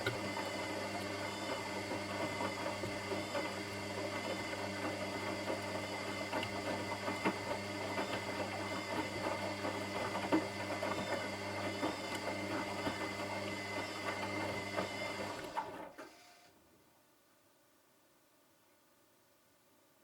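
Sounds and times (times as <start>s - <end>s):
washing machine motor hum: 0.0s - 16.0s.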